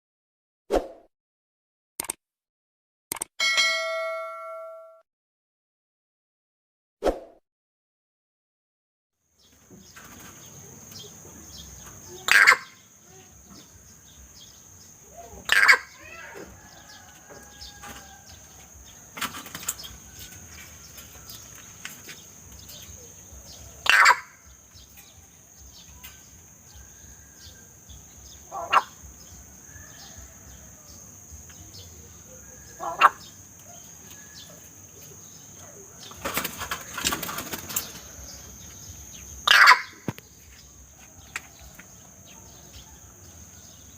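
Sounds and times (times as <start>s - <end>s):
sharp bird calls: 9.9s - 20.0s, 21.0s - 30.4s, 32.3s - 34.6s, 35.6s - 40.4s.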